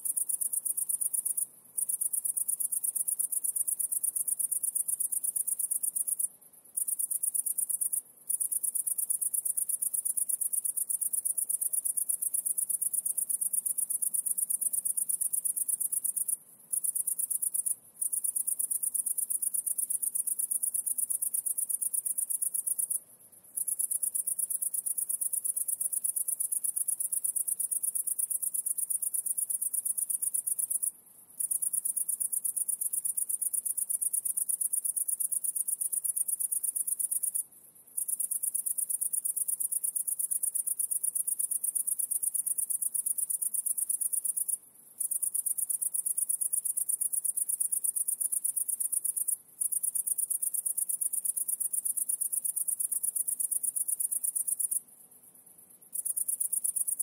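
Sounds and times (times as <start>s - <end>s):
high-pitched insect trill: 38.0s - 54.8s.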